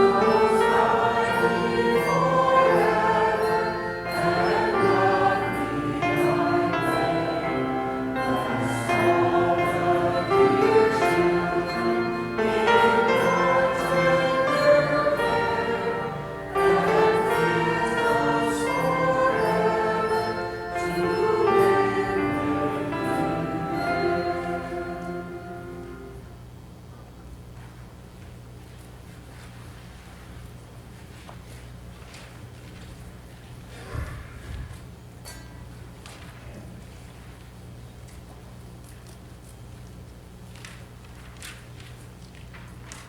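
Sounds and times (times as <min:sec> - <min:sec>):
choir singing: 0:00.0 - 0:26.3.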